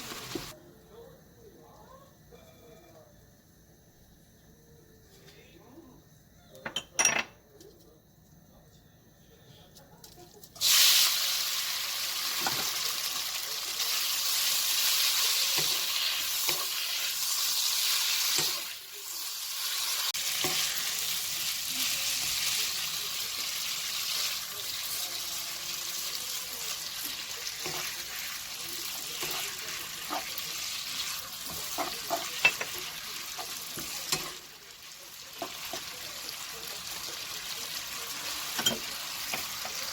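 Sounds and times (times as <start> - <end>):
food sizzling in a hot pan: 0.0 - 0.6, 10.6 - 39.9.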